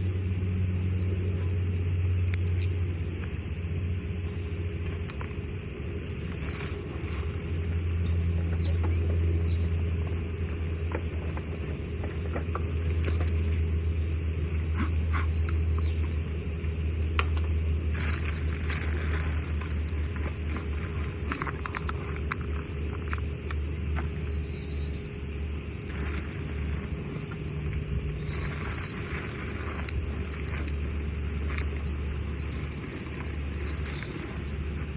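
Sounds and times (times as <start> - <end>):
insects trilling: 0.0 - 34.9
low steady hum: 0.0 - 34.9.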